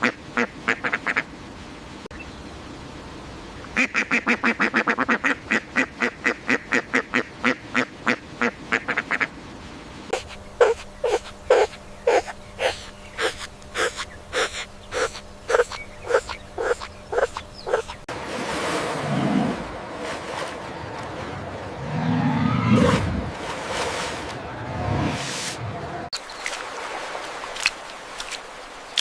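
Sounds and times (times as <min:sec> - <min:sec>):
animal calling: 0:10.1 - 0:18.0.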